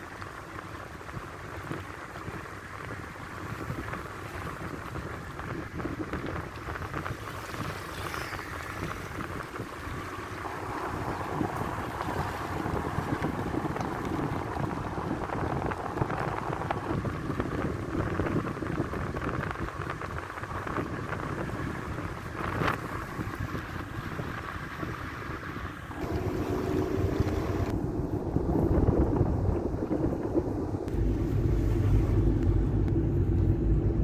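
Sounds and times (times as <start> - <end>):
wind buffeting microphone: 0.0 - 34.0
low rumble: 9.6 - 18.4, 25.9 - 34.0.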